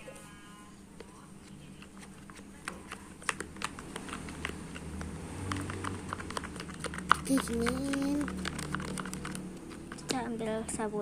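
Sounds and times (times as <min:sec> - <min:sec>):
slime stirred with sticky clicks: 0:01.8 - 0:10.3.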